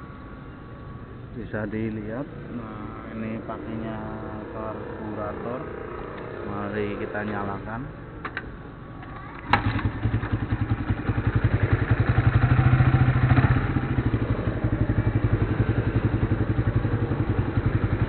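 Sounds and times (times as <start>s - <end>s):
motorcycle engine starting and idling: 3.7s - 18.0s.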